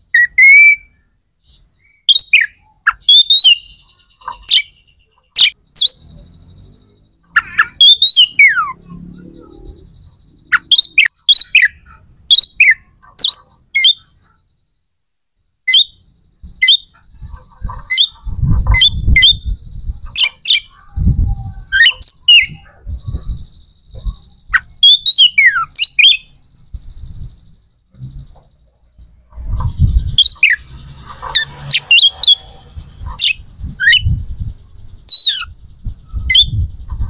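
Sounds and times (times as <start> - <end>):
bird chirping: 0.0 - 37.0
low rumbling noise: 26.2 - 37.0.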